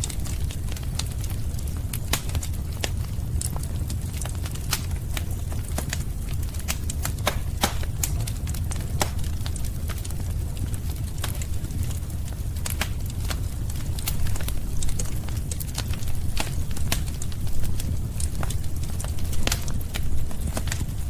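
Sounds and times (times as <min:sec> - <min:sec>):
fire crackling and popping: 0:00.0 - 0:21.0
flames rushing: 0:00.0 - 0:21.0.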